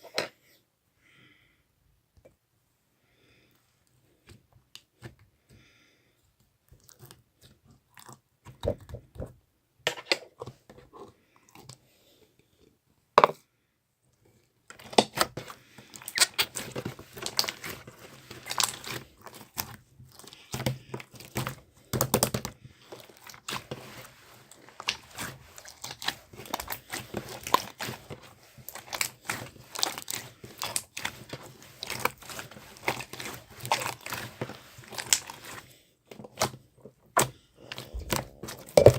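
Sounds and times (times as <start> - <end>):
slime squishing and crackling: 14.7 - 38.9.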